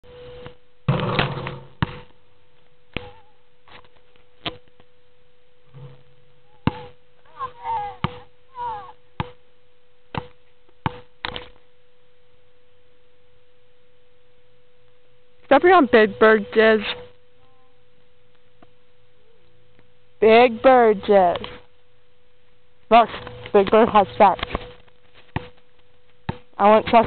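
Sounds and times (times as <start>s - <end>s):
high electronic hum: 0.0s - 27.0s
basketball bouncing on a court: 6.6s - 7.0s, 8.0s - 8.3s, 9.2s - 9.4s, 10.1s - 11.4s.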